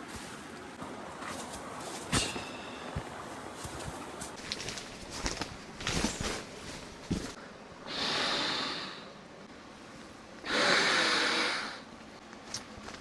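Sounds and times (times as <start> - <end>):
rustling: 0.0 - 7.4.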